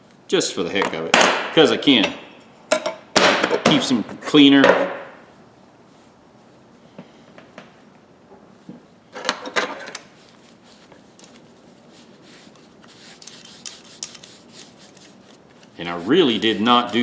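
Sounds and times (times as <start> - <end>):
scratchy rubbing: 10.4 - 17.0
pliers clicking: 13.2 - 14.4.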